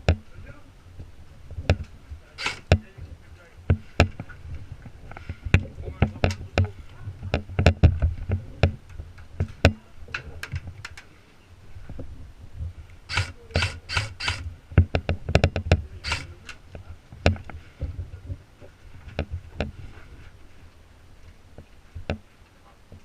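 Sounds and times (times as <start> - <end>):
sharp clicks and knocks: 0.0 - 0.3, 1.5 - 3.0, 3.7 - 11.1, 13.1 - 18.0
low rumble of handling or wind: 0.0 - 23.0
short rustling scrapes: 17.5 - 20.7.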